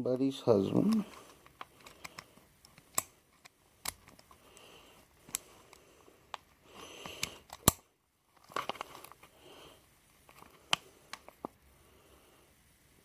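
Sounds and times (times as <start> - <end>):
soft breathing: 4.2 - 7.6, 8.7 - 12.8.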